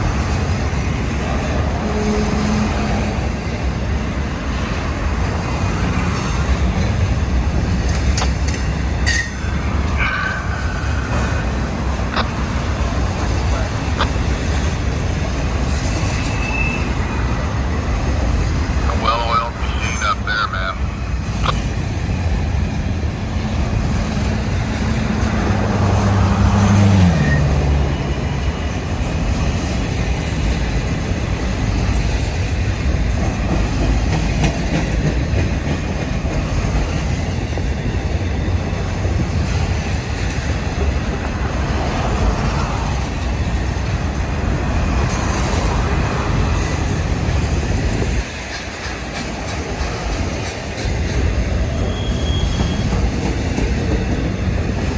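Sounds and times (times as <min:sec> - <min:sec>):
locomotive engine rumble: 0:00.0 - 0:54.9
railcar wheel clatter: 0:00.0 - 0:54.9.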